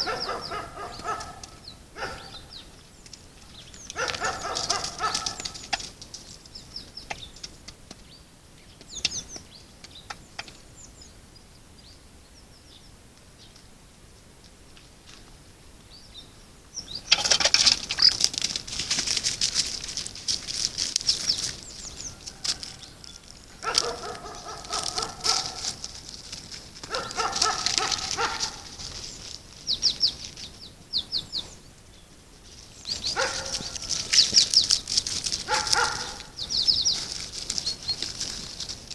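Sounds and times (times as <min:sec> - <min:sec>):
lower bird calls: 0:00.0 - 0:14.3, 0:21.1 - 0:26.0, 0:26.8 - 0:38.5
birds chirping rapidly: 0:00.0 - 0:14.7, 0:15.8 - 0:38.9.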